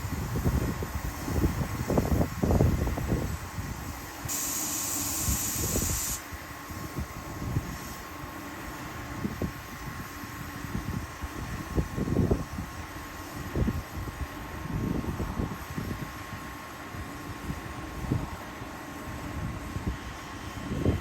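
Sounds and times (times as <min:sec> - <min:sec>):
compressed air hiss: 0:00.0 - 0:08.9.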